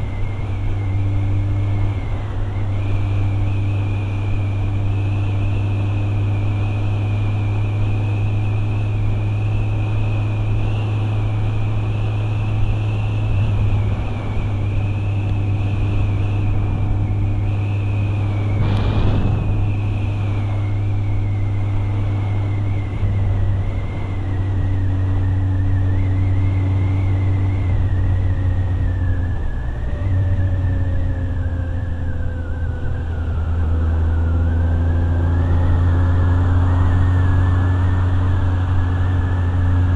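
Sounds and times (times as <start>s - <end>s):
motorcycle engine running: 0.0s - 29.5s
brief rushing sound: 18.2s - 21.1s.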